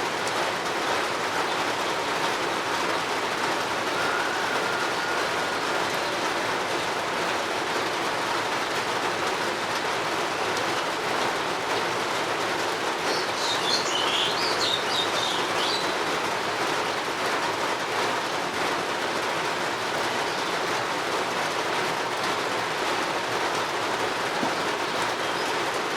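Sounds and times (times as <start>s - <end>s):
steady rain hiss: 0.0s - 25.9s
bird chirping: 13.1s - 16.0s.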